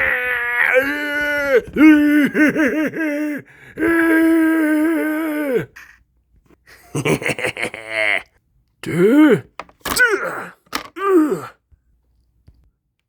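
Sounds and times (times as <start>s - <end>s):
wailing vocal cry: 0.0s - 5.7s.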